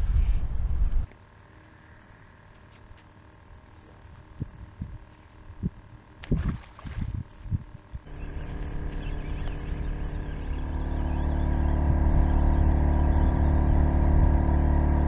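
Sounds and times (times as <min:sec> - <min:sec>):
wind thumps on microphone: 0:05.6 - 0:08.0
fish splashing into water: 0:06.2 - 0:07.2.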